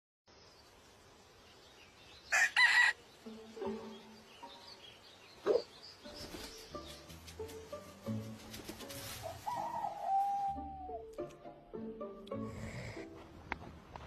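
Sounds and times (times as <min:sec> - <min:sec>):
chicken calling: 0:09.2 - 0:11.1.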